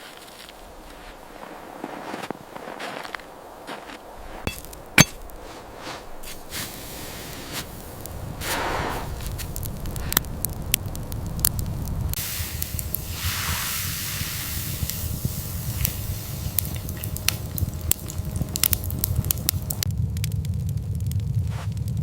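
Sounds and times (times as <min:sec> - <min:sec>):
sharp crackles: 0:00.0 - 0:22.0
steady low rumble: 0:00.6 - 0:22.0
rushing hiss: 0:05.4 - 0:10.2, 0:12.2 - 0:19.8.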